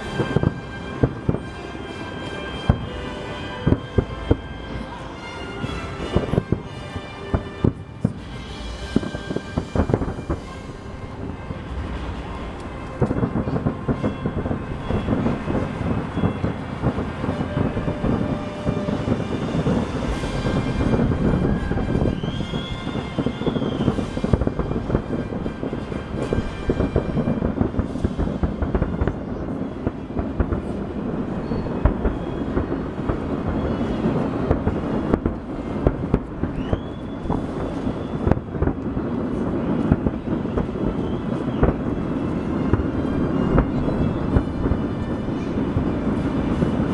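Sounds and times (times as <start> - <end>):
distant fireworks booming: 0.0 - 46.9
firework whistles: 0.0 - 46.9.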